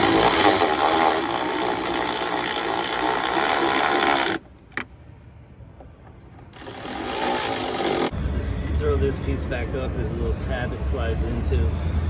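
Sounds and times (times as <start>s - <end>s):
electric ratchet driving bolt: 0.0s - 4.9s, 6.5s - 8.1s.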